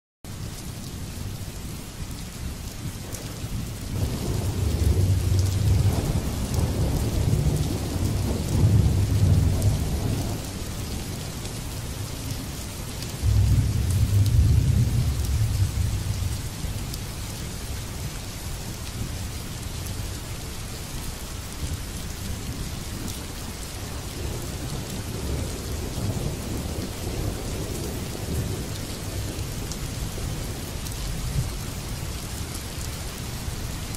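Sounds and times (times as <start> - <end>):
rain falling on water: 0.3 - 33.9
low rolling thunder: 3.0 - 11.0, 13.2 - 17.0, 23.9 - 31.6.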